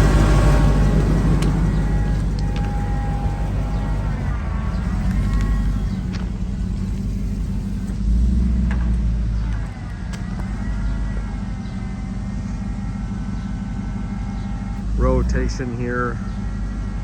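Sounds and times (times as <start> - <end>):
sharp clicks: 0.0 - 11.2
faint wavering whine: 0.0 - 17.0
truck engine idling: 0.0 - 17.0.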